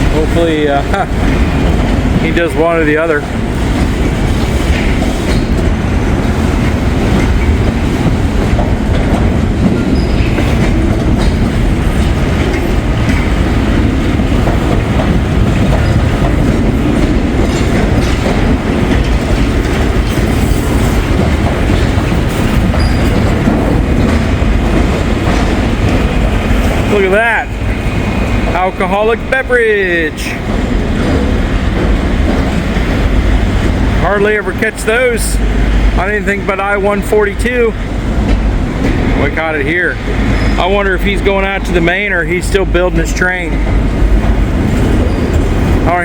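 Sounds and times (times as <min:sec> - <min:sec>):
wheels clicking over rail joints: 0:00.0 - 0:36.6
train wheels rumbling on rail: 0:00.0 - 0:46.0.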